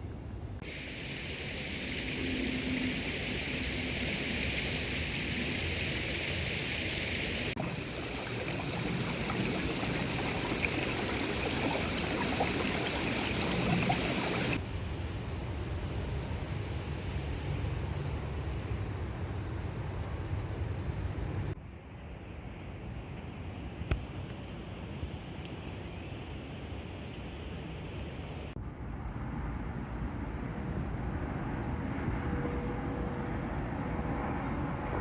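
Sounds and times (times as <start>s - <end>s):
running water rushing: 0.6s - 14.6s.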